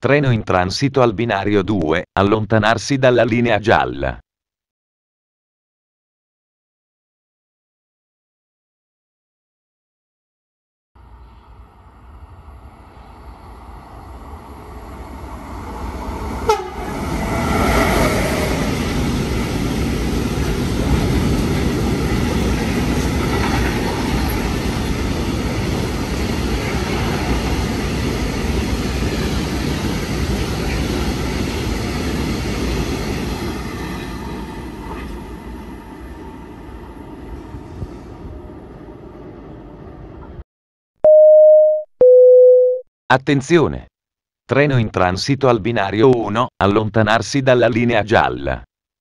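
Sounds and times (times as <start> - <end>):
train wheels rumbling on rails: 11.0 - 38.4
train horn blast: 16.4 - 16.9.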